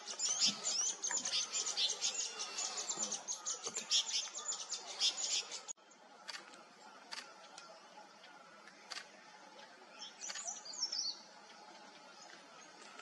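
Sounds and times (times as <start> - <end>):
bird chirping and twittering: 0.0 - 5.7, 10.0 - 11.3.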